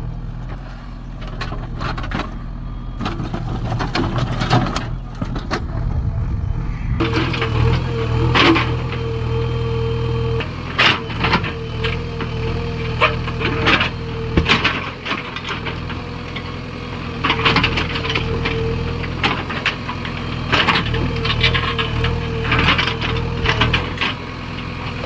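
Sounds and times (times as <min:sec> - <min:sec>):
diesel engine running: 0:00.0 - 0:25.0
constant whine: 0:01.4 - 0:12.1.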